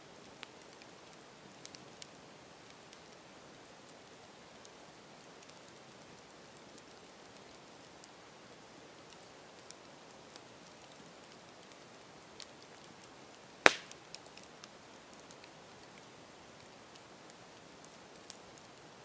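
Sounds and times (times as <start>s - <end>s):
campfire crackling: 0.0s - 19.0s
fire hissing: 13.4s - 14.2s
loud wood pop: 13.6s - 14.0s.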